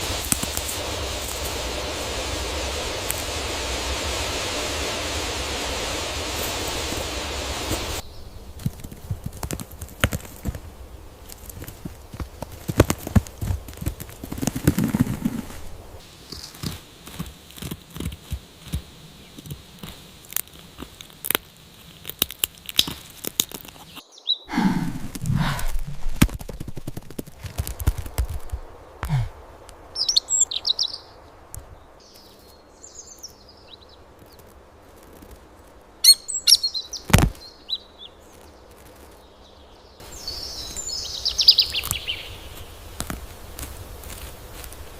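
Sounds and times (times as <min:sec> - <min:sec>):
bird wing flutters: 0:00.0 - 0:21.0, 0:22.7 - 0:30.1, 0:34.2 - 0:35.9, 0:38.2 - 0:39.3, 0:40.0 - 0:44.9
short high bird chirps: 0:30.0 - 0:31.0, 0:36.0 - 0:37.1.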